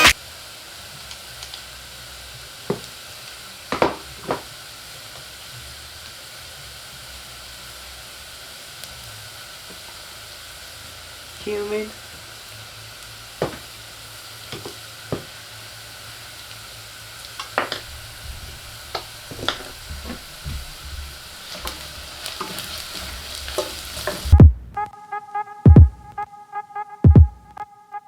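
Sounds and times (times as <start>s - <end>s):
onions sizzling in hot oil: 0.0s - 24.4s
spoon knocking against pan: 3.7s - 4.5s, 13.4s - 13.6s, 14.5s - 15.3s, 17.4s - 24.3s
heavy thumps: 13.4s - 13.7s, 17.4s - 24.9s, 25.7s - 26.2s, 27.1s - 27.5s
background music with a beat: 24.3s - 28.0s.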